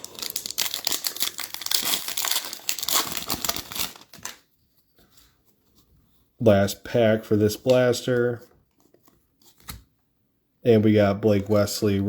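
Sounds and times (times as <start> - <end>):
foil wrapper crinkling: 0.0 - 4.4.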